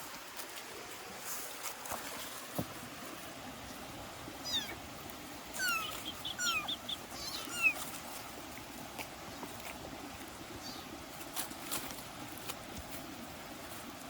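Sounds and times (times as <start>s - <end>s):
kittens mewing: 4.4s - 4.8s, 5.5s - 7.9s.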